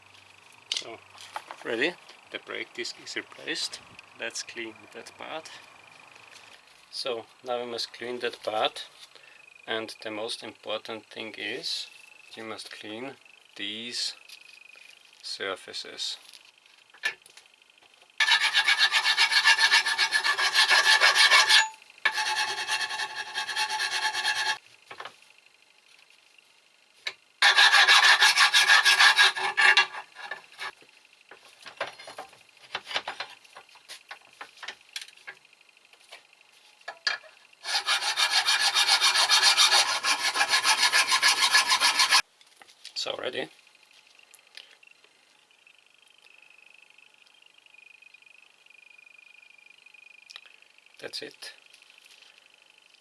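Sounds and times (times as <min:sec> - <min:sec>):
hand file rasping metal: 0:18.2 - 0:24.6, 0:27.4 - 0:30.7, 0:37.6 - 0:42.2.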